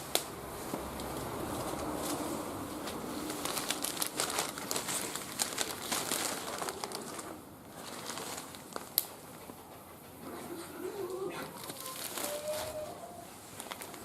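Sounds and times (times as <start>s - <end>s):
wood fire crackling: 0.0s - 9.2s.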